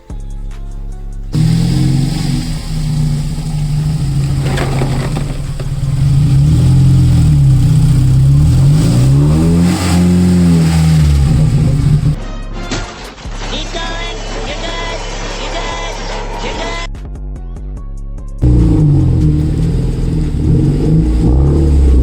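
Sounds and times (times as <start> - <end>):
car engine revving: 1.3 - 12.2, 18.4 - 22.0.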